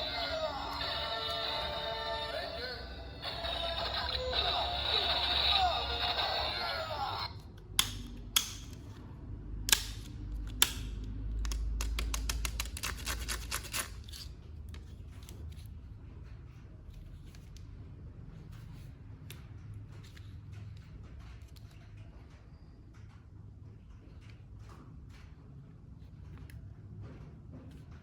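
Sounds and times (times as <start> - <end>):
toy packaging clicks: 9.7 - 14.2.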